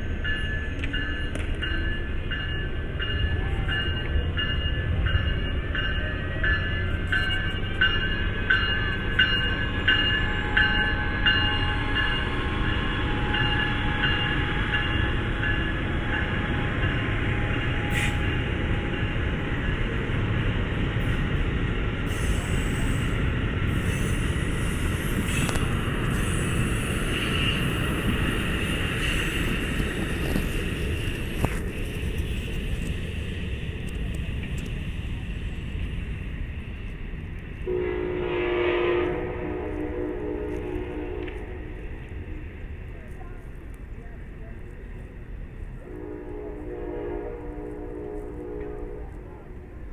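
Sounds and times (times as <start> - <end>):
train rumbling past: 0.0 - 49.9
train wheel clicks: 17.7 - 36.0.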